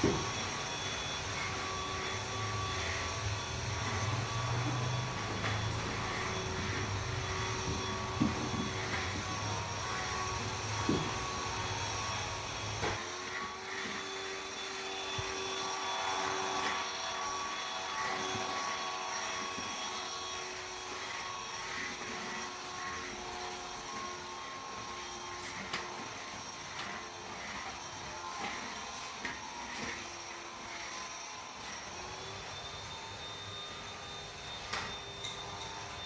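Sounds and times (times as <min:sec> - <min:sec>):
small electric motor whirring: 0:00.0 - 0:36.0.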